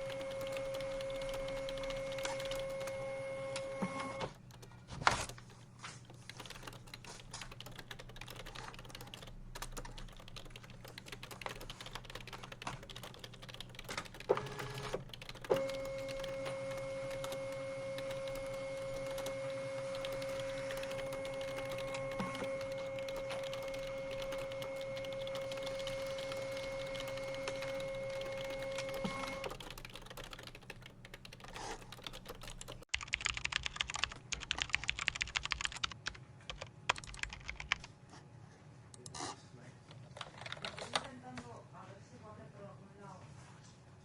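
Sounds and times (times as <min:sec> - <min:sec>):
steady machine hum: 0:06.1 - 0:32.8.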